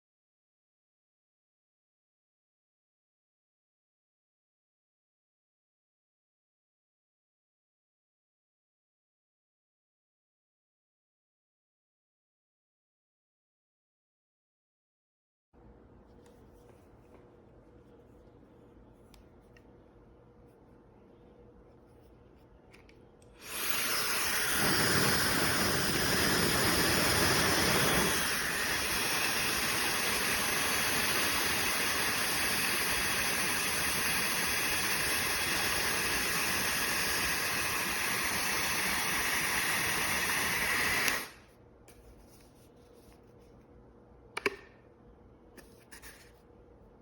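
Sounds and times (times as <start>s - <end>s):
hair dryer running: 23.3s - 41.4s
hair dryer switch click: 40.8s - 41.4s, 44.4s - 44.8s.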